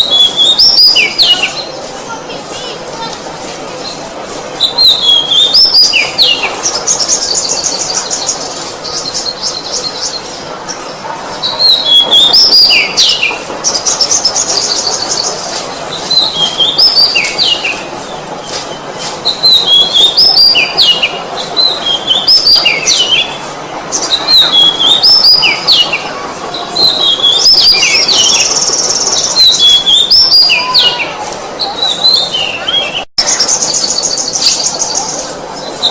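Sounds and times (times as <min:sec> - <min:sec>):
bird singing whistles and trills: 0:00.0 - 0:01.7, 0:04.6 - 0:10.3, 0:19.2 - 0:23.3, 0:24.0 - 0:26.0.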